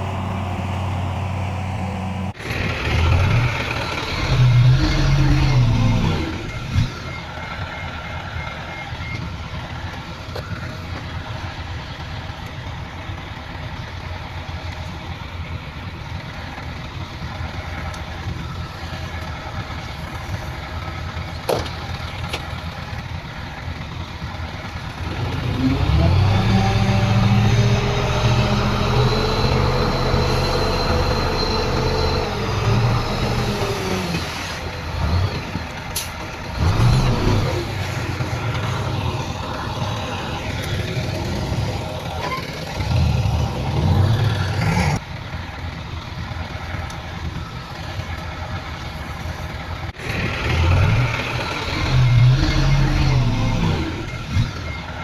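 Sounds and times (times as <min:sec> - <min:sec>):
engine revving under load: 0:00.0 - 0:07.0, 0:25.0 - 0:45.0, 0:49.9 - 0:55.0
heavy diesel machinery rumbling: 0:00.0 - 0:55.0.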